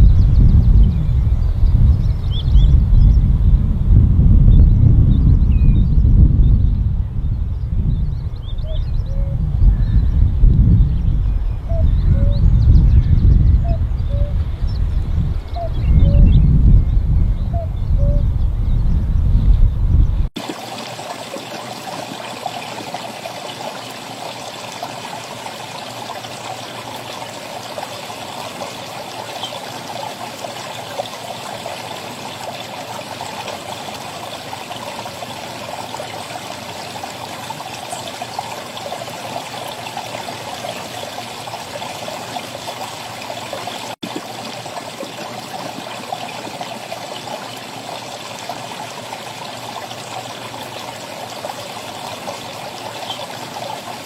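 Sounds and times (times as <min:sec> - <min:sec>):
stream trickling: 0:20.3 - 0:54.0.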